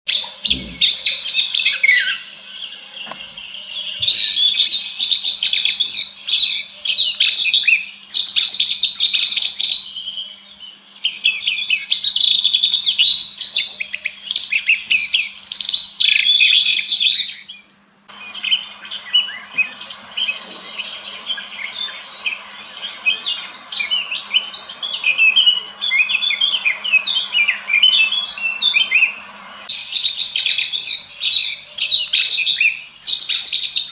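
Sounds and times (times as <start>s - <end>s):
bird chattering warble: 0.4s - 2.2s.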